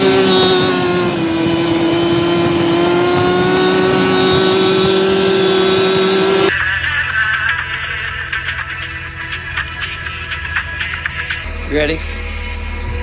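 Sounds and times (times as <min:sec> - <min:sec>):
snowmobile engine at high revs: 0:00.0 - 0:06.5.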